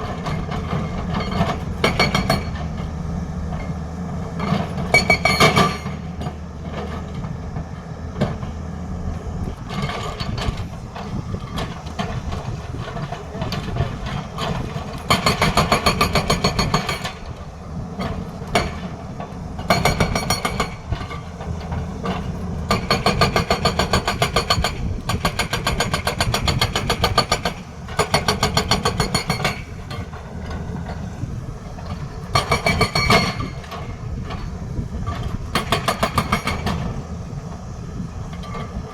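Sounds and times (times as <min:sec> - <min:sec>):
diesel engine drone: 0:00.0 - 0:38.9
hydraulic breaker hammering: 0:09.9 - 0:17.3, 0:19.7 - 0:21.2, 0:22.7 - 0:30.4, 0:32.3 - 0:33.9.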